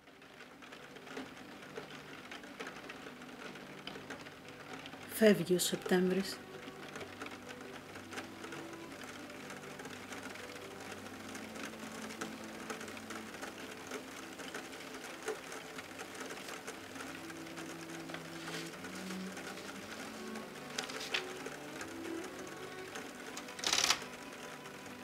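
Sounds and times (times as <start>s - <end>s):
mechanical clicking and rattling: 6.6s - 25.0s.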